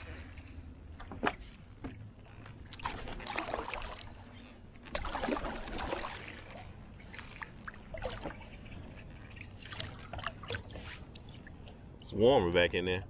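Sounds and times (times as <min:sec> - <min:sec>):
paddle splashing in water: 0:02.5 - 0:11.8.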